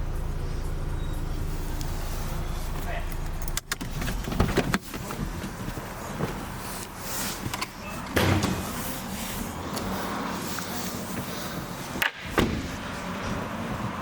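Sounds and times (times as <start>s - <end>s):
short thuds: 12.0s - 13.4s.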